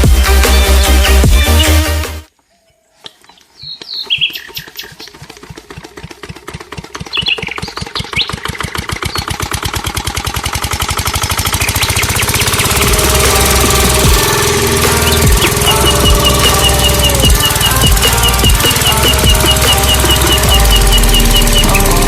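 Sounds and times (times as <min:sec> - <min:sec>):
model diesel engine firing: 0:05.3 - 0:22.0
short high squeaks: 0:14.9 - 0:22.0.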